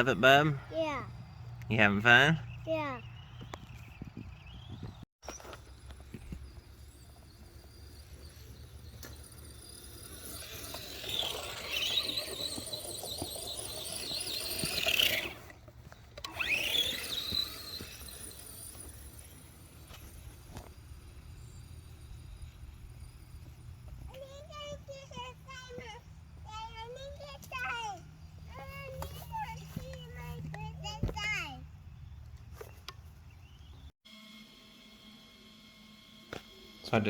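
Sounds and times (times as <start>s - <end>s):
rc car electric motor whining: 5.3s - 25.9s, 34.1s - 37.0s.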